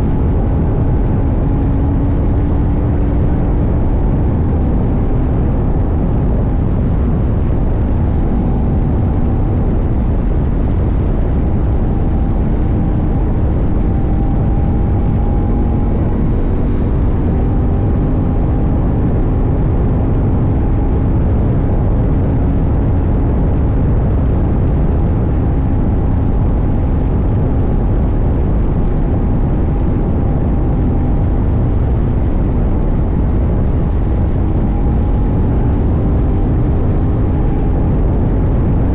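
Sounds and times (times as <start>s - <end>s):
motorcycle engine running: 0.0s - 23.4s
wind and road noise: 0.0s - 38.9s.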